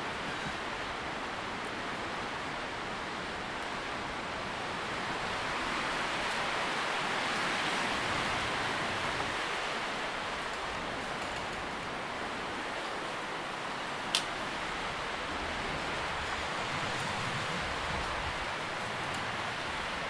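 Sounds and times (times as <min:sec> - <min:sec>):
wind rustling tree leaves: 0:00.0 - 0:20.0.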